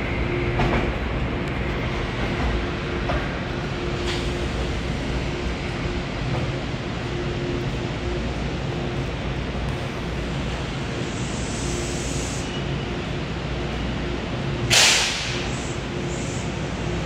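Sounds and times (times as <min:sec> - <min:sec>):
train equipment humming: 0:00.0 - 0:17.0
air hiss burst: 0:14.7 - 0:16.5.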